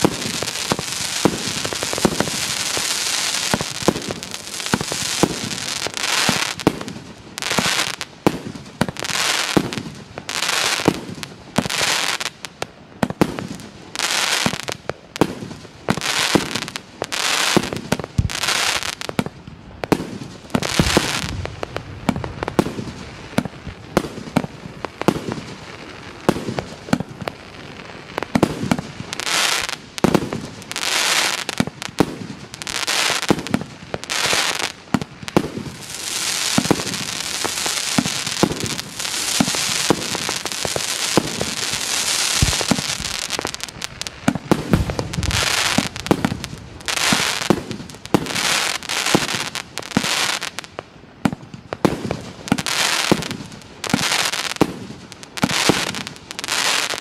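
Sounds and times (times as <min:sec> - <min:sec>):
fireworks bangs: 0:00.0 - 0:12.4, 0:13.0 - 0:57.0
crackling hiss of fireworks stars: 0:00.0 - 0:57.0.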